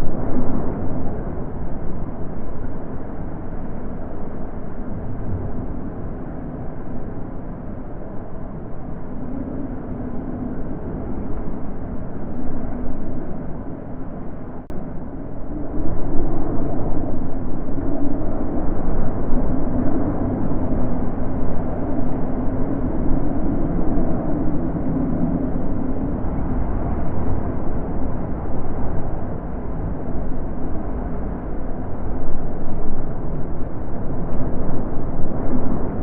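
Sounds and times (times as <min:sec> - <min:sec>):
wind blowing: 0:00.0 - 0:36.0.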